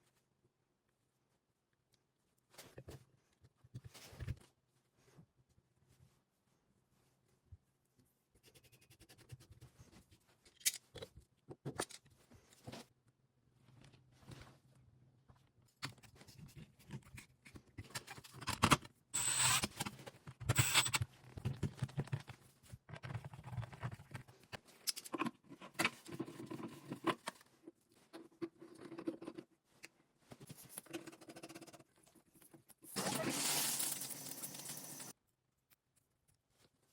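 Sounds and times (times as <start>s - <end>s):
small clicks taps and scrapes: 19.8s - 32.8s.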